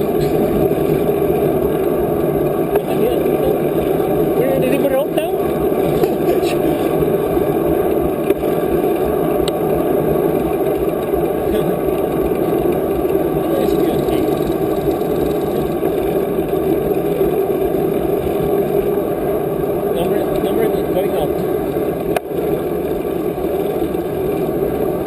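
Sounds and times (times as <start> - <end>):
bicycle ride hum: 0.0 - 25.0.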